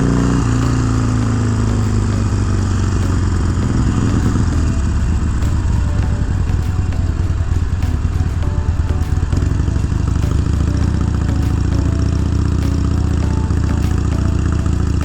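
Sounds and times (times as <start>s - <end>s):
motorcycle exhaust pulsing: 0.0s - 15.0s.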